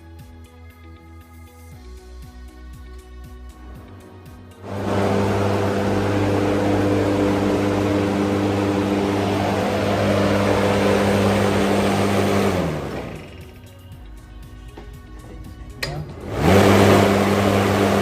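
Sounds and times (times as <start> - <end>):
mower winding down: 3.5 - 13.8, 14.8 - 18.0
electric lawn mower running: 3.6 - 13.7, 15.4 - 18.0.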